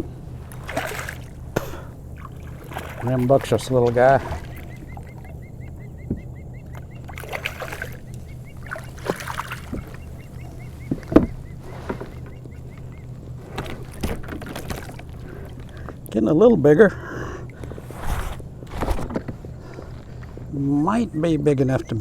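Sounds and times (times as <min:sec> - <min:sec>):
water splashing: 0:00.0 - 0:16.2
steady low hum: 0:00.0 - 0:22.0
sharp knocks on kayak: 0:06.0 - 0:06.3, 0:08.8 - 0:12.5, 0:13.4 - 0:15.1.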